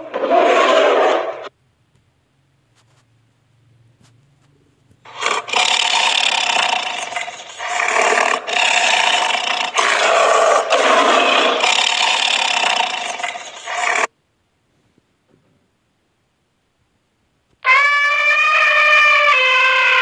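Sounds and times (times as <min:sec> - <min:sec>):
tiger roaring and snarling: 0:00.0 - 0:01.5, 0:05.1 - 0:14.1, 0:17.7 - 0:20.0.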